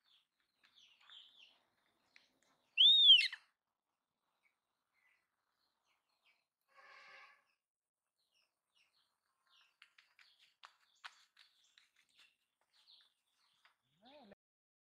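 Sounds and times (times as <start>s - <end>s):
bird call: 2.8s - 3.4s
faint bird chirps: 2.8s - 3.4s.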